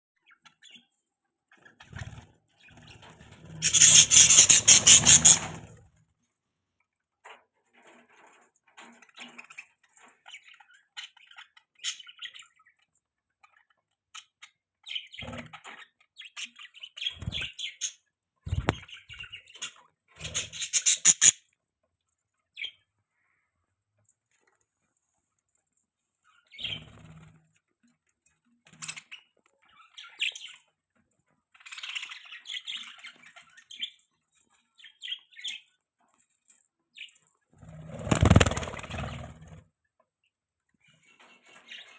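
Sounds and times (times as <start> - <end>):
budgerigars chirping and chattering: 1.5 - 5.7, 9.2 - 12.8, 13.4 - 21.4, 26.3 - 27.3, 28.7 - 30.7, 31.5 - 35.8, 37.0 - 39.6, 40.8 - 41.9
loud squawk: 3.6 - 5.6.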